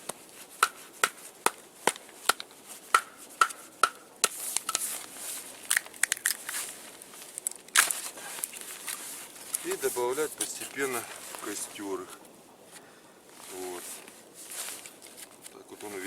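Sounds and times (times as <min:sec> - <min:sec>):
wood cracking and snapping: 0:05.6 - 0:09.7.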